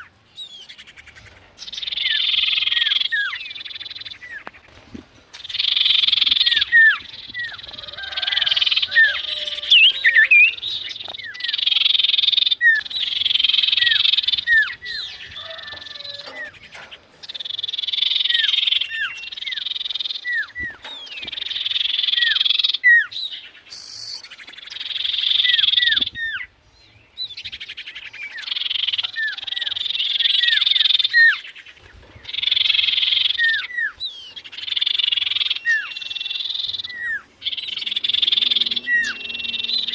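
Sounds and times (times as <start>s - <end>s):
bird buzzy rattling trill: 5.3s - 22.9s.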